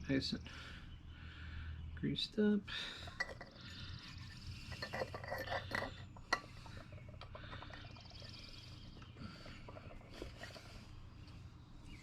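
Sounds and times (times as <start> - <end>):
faint steady hum: 0.0 - 12.0
light clicks of metal parts: 2.9 - 12.0.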